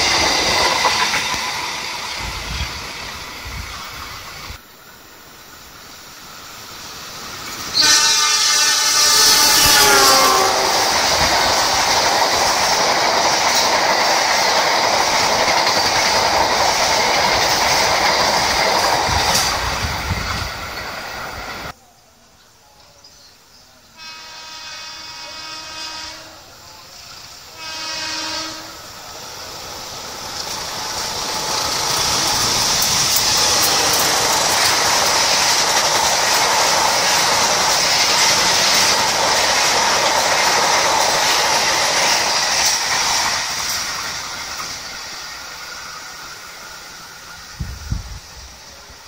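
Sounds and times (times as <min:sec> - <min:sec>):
train wheels rolling over rails: 0:00.0 - 0:21.8, 0:26.9 - 0:49.0
train horn blasts: 0:07.7 - 0:11.1, 0:24.0 - 0:26.6, 0:27.5 - 0:28.9.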